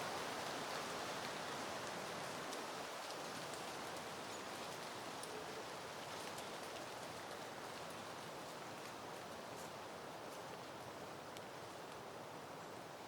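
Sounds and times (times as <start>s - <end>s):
wind rustling leaves: 0.0s - 13.0s.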